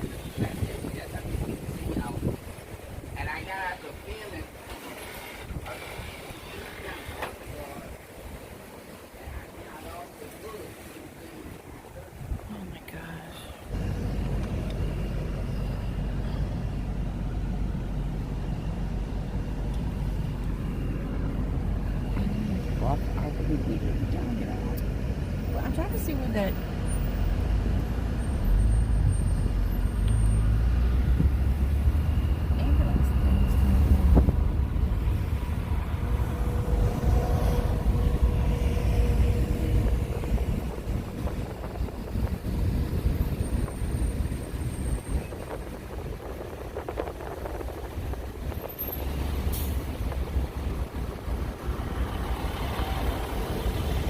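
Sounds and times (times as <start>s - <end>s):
wind buffeting microphone: 0.0s - 9.5s, 11.3s - 54.0s
car interior road noise: 0.0s - 54.0s
faint steady tone: 9.3s - 24.6s.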